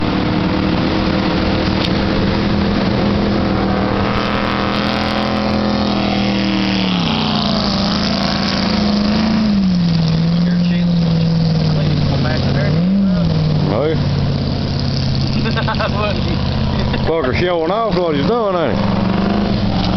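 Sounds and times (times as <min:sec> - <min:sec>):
rushing water noise: 0:00.0 - 0:19.9
speedboat engine hum: 0:00.0 - 0:19.9.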